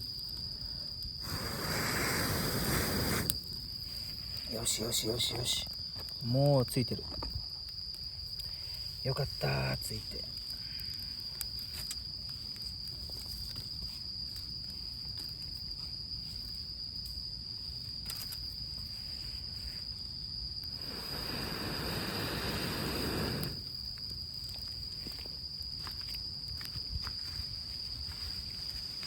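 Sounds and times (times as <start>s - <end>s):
campfire crackling: 0.0s - 29.0s
insects chirring: 0.0s - 29.0s
air blown through pipe into fire: 1.2s - 3.5s, 20.6s - 23.8s.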